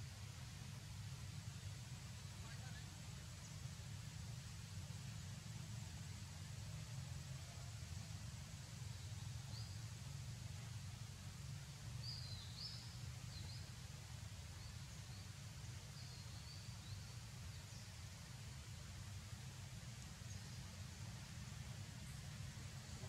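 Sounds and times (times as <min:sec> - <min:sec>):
small birds chirping: 0:12.0 - 0:18.8.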